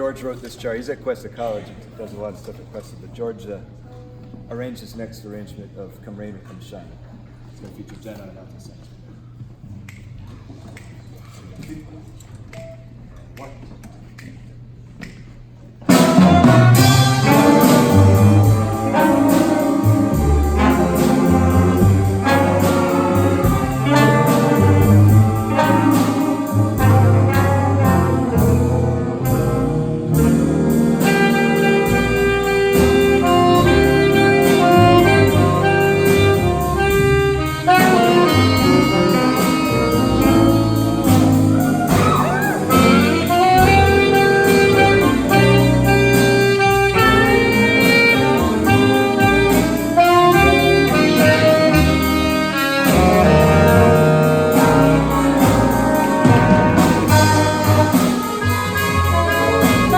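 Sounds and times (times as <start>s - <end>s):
big band jazz playing: 15.8s - 59.9s
cymbal keeping a beat: 15.9s - 59.9s.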